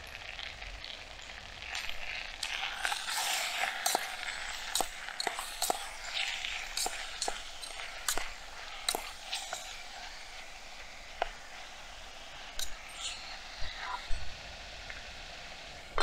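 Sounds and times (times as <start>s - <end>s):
food sizzling in oil: 0.0s - 16.0s
metal spoon scraping a pot: 1.8s - 10.5s.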